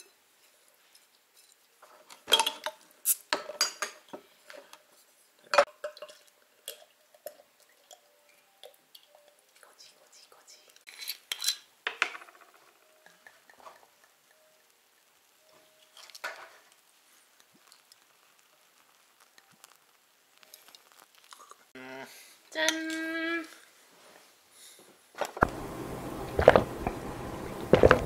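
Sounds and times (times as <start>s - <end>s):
glass and tableware clinking: 2.2s - 4.2s, 5.5s - 9.2s.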